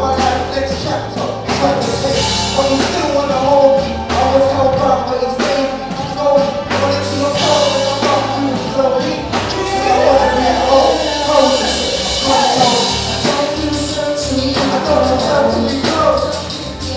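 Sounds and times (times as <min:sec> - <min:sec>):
live gospel music: 0:00.0 - 0:16.9.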